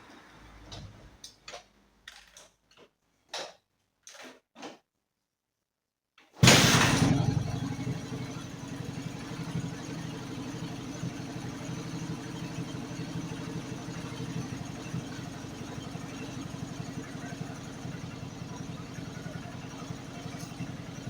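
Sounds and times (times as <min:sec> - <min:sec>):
motorcycle engine starting and idling: 0:06.4 - 0:21.0.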